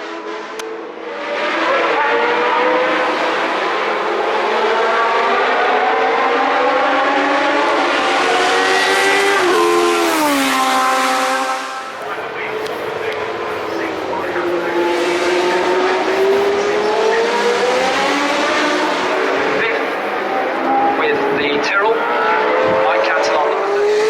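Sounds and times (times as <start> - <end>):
racing car engine at high revs: 0.0 - 24.0.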